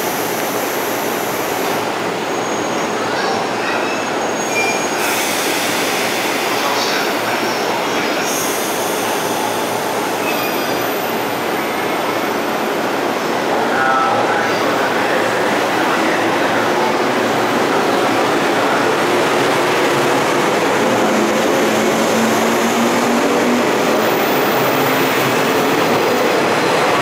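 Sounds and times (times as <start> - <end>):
faint high squeals: 2.4 - 5.2, 8.3 - 12.1.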